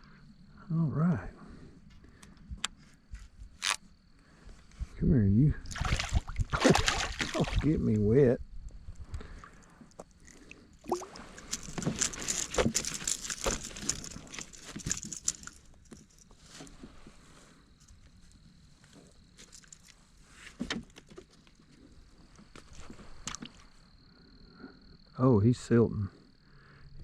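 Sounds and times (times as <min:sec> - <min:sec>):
fish flopping and splashing: 0:05.7 - 0:07.7, 0:09.2 - 0:16.1
rattling clicks: 0:11.3 - 0:16.2.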